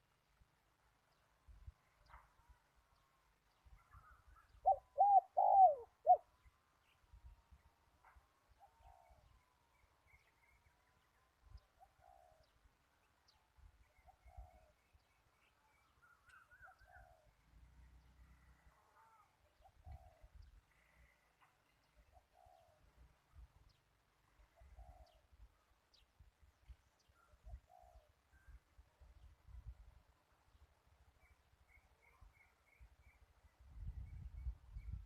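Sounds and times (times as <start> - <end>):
dove cooing: 4.6 - 6.3.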